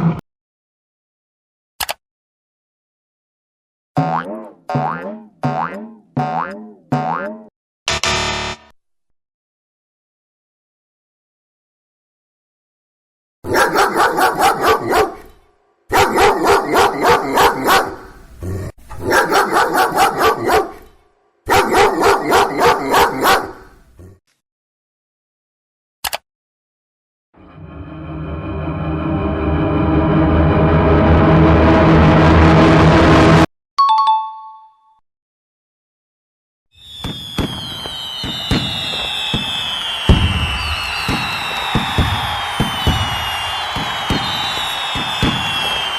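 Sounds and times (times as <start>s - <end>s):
dog barking: 13.5s - 18.2s, 19.0s - 20.9s, 21.5s - 23.7s
falling high whistle: 36.8s - 45.9s.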